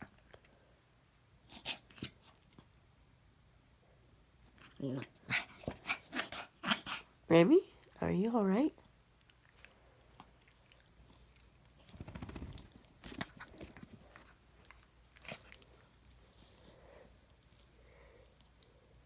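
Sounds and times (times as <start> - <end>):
dog chewing: 8.8 - 19.0.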